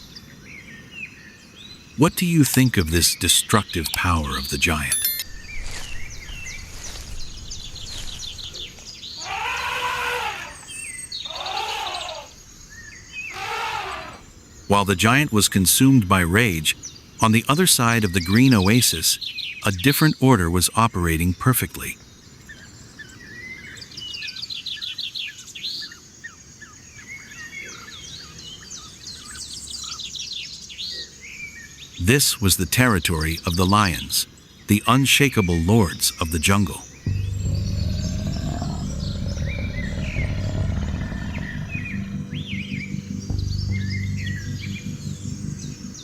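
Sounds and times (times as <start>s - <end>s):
songbirds singing and chirping: 0.0s - 46.0s
drawn-out animal calls: 7.8s - 10.6s, 11.3s - 12.3s, 13.3s - 14.2s, 37.1s - 42.7s
low steady rumble: 37.1s - 46.0s.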